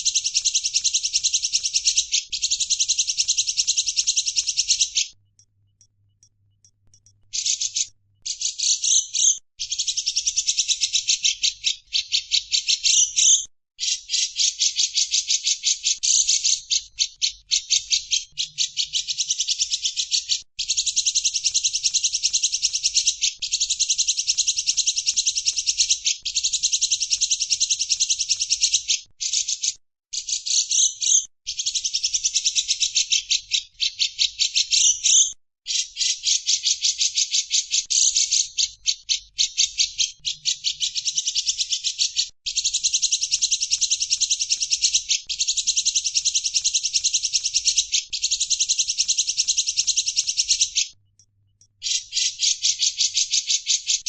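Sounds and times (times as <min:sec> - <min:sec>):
songbird rattling trills: 0:00.0 - 0:13.4.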